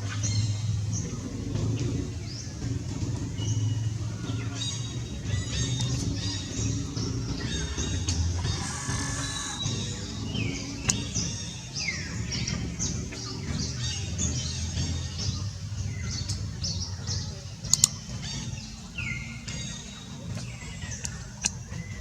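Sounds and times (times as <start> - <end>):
low rumble: 0.0 - 22.0
sharp clicks: 8.0 - 11.4, 17.7 - 18.3.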